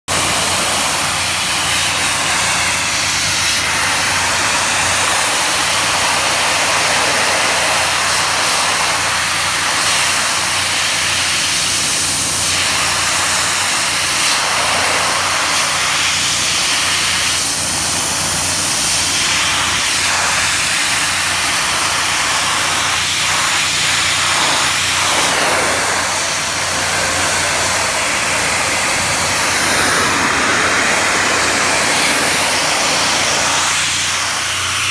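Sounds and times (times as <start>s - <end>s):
pressure washer jet hissing: 0.1s - 34.9s
motor hum: 20.9s - 34.9s.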